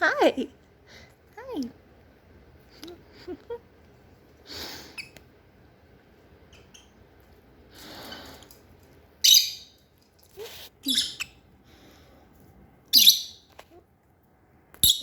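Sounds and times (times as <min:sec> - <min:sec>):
lovebirds chirping: 0:09.2 - 0:09.8, 0:10.5 - 0:11.5, 0:12.9 - 0:13.5.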